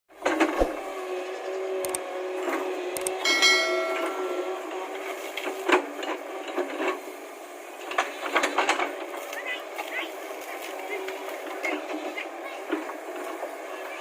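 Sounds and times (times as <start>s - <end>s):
excavator engine humming: 0.2s - 14.0s
metallic clang: 3.3s - 5.0s.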